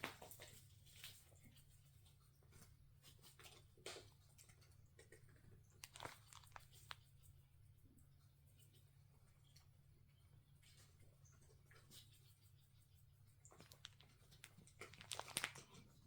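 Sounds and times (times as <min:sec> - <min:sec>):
cat chewing while grooming: 0:00.0 - 0:09.7, 0:13.1 - 0:16.0.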